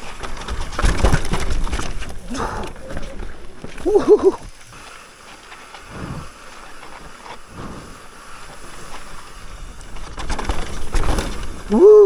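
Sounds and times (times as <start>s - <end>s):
bike thumping over bumps: 0.0s - 4.7s, 8.9s - 12.0s
bike tyre noise on dirt: 0.0s - 12.0s.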